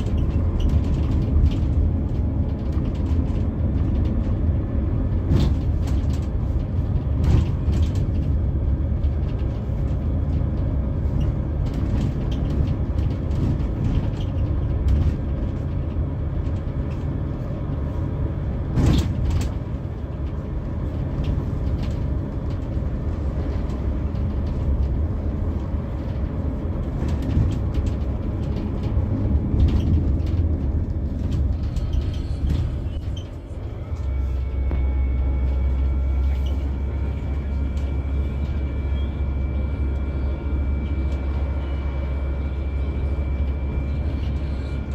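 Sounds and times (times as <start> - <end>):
coach engine and road rumble: 0.0 - 44.9.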